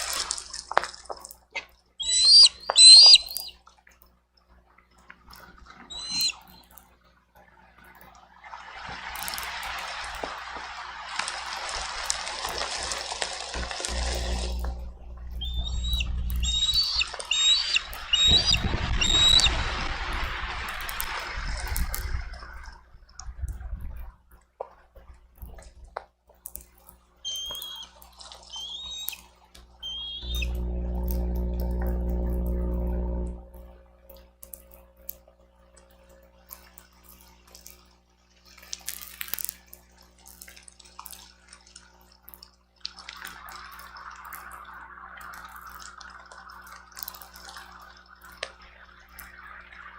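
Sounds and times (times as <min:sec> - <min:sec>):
rain drips and tapping: 0:00.0 - 0:04.1, 0:09.0 - 0:49.7
eagle chirping calls: 0:02.0 - 0:03.6, 0:05.9 - 0:06.7, 0:13.9 - 0:19.8, 0:27.2 - 0:31.2
wind gusting on microphone: 0:17.8 - 0:24.1.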